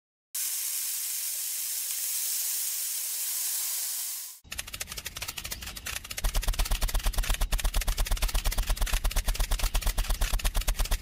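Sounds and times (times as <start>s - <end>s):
small engine chugging: 4.5s - 11.0s.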